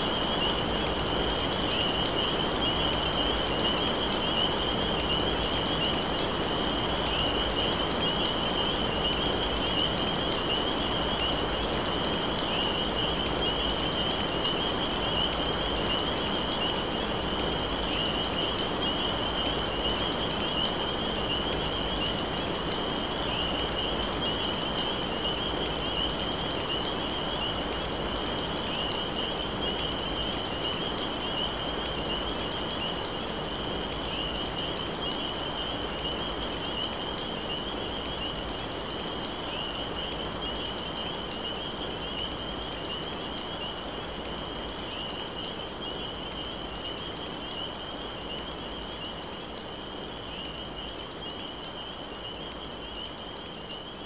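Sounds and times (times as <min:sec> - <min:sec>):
continuous high trill: 0:00.0 - 0:54.0
steady rain falling: 0:00.0 - 0:54.0.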